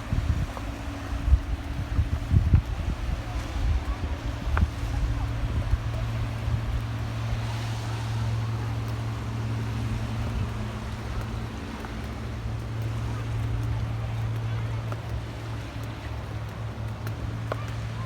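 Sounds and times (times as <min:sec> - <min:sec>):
ferry engine humming: 0:00.0 - 0:18.0
wind buffeting microphone: 0:00.0 - 0:18.0.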